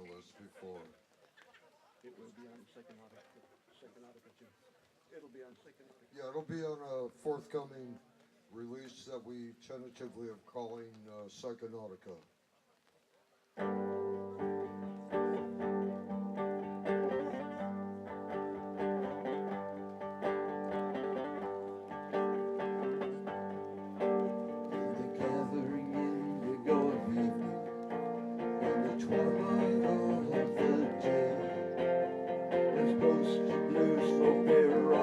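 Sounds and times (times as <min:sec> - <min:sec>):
plucked guitar: 0:13.6 - 0:35.0
sustained held notes: 0:22.7 - 0:35.0.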